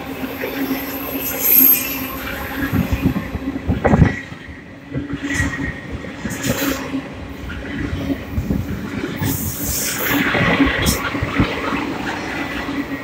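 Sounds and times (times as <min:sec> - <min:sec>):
high squeal: 0:00.2 - 0:03.3.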